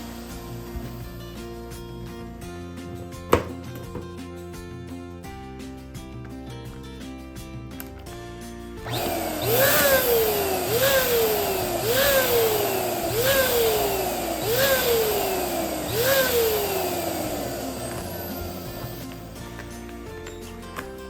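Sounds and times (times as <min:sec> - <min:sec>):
electric balloon pump running: 0:00.0 - 0:04.1, 0:08.8 - 0:20.8.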